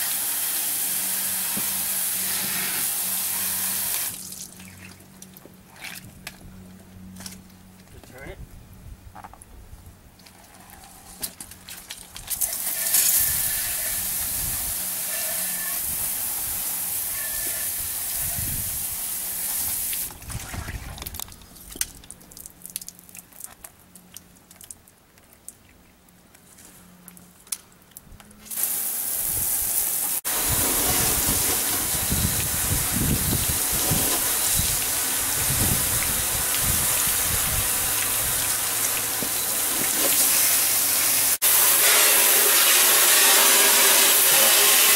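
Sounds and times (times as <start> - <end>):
water spraying hiss: 0.0 - 4.6, 12.4 - 20.1, 28.5 - 44.9.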